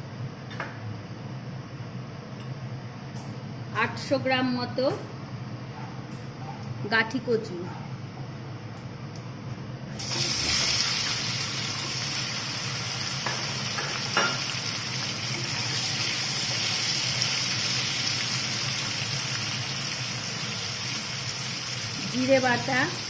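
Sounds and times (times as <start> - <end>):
taro sizzling in hot oil: 10.0 - 23.0.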